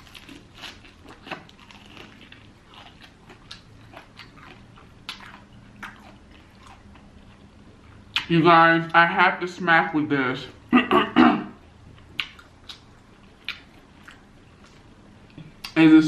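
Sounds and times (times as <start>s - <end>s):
crunchy chewing of fried chicken: 0.0s - 8.3s, 11.7s - 15.8s.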